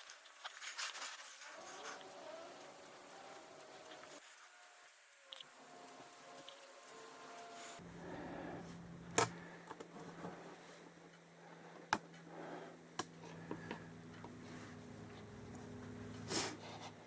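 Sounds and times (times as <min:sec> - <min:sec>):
faint low hum: 0:01.6 - 0:17.0.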